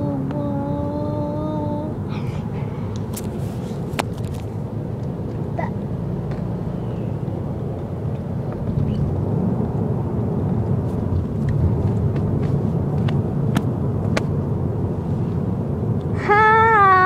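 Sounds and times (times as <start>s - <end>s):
car road noise: 0.0s - 17.0s
child crying meow-like: 16.2s - 17.0s.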